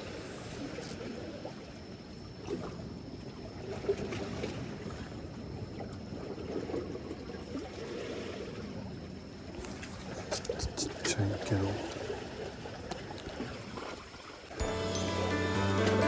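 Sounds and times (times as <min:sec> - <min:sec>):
water lapping against seawall: 0:00.0 - 0:14.6.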